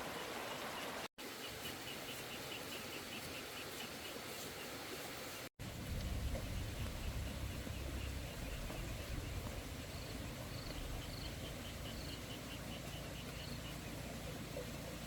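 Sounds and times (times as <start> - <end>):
low rumble and hiss: 5.6 - 15.0.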